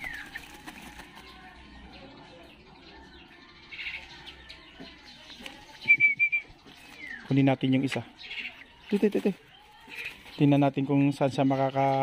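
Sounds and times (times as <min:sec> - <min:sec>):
wings flapping against mesh: 0:00.0 - 0:01.4.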